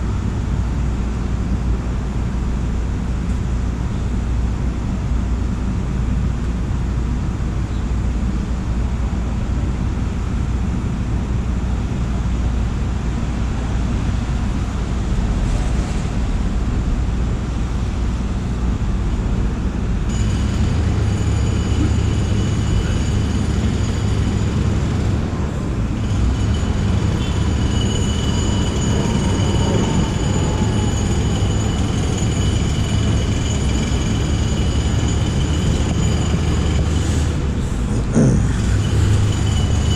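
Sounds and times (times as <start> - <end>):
subway train rumble: 0.0 - 39.9
high whine: 16.1 - 39.9.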